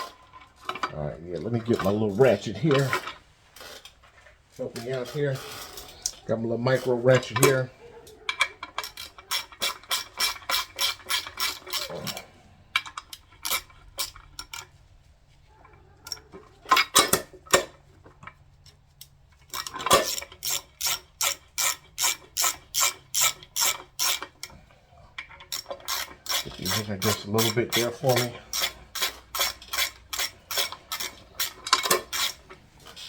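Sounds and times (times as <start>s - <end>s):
ratchet pawl clicking: 19.0s - 24.5s, 25.5s - 32.4s.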